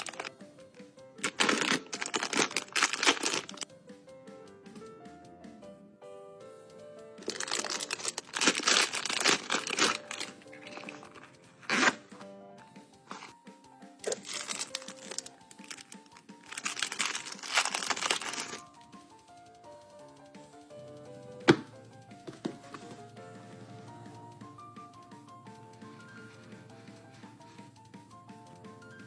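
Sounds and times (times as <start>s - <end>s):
packaging crinkling and tearing: 0.0s - 0.3s, 1.2s - 3.6s, 7.2s - 12.2s, 14.0s - 18.6s
soft background music: 0.0s - 29.0s.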